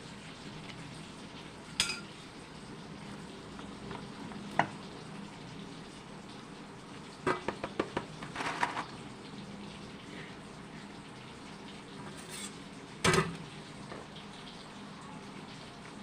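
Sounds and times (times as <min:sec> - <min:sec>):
dishes clinking and clattering: 0:01.8 - 0:02.1, 0:07.2 - 0:09.0, 0:12.0 - 0:13.4
utensil scrape: 0:12.1 - 0:12.6.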